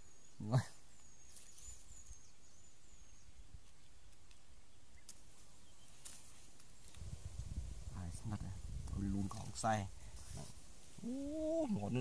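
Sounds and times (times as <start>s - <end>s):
small bird chirping: 0.0s - 7.1s.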